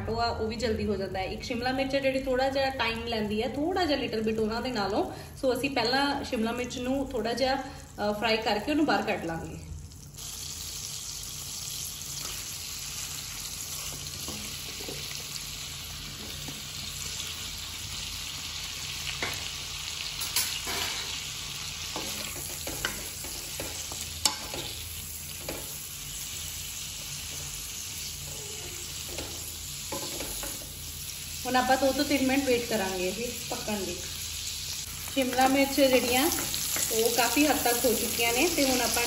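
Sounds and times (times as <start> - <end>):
capsicum sizzling in butter: 8.3 - 39.0.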